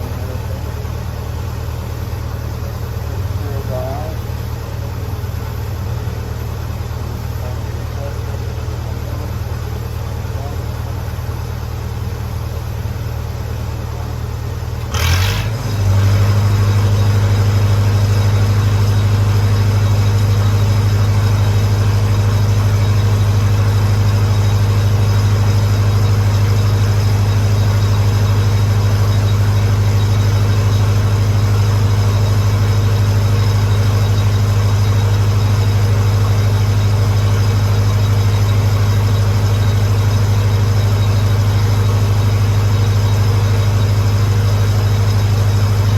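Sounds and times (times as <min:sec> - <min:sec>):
welder engine running: 0:00.0 - 0:45.9.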